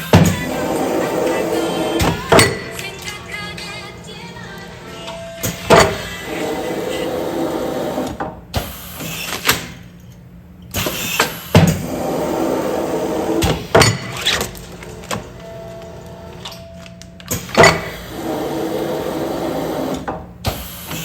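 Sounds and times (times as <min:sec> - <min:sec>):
machine press clacking: 0:00.0 - 0:03.5, 0:04.6 - 0:06.9
sealing machine motor running: 0:00.0 - 0:09.8, 0:10.8 - 0:21.0.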